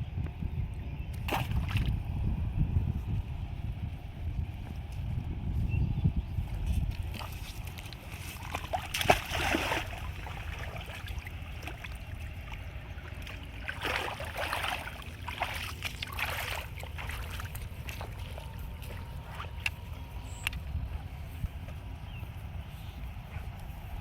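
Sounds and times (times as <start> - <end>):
steady low rumble: 0.0 - 24.0
water splashing and sloshing: 1.2 - 2.1, 6.6 - 21.8.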